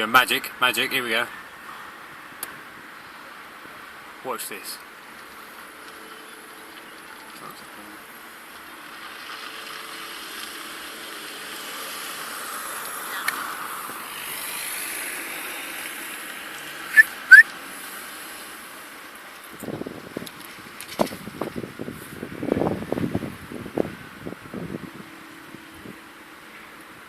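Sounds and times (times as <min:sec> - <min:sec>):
traffic noise: 0:00.0 - 0:27.0
rising whistled chirps: 0:16.9 - 0:17.4.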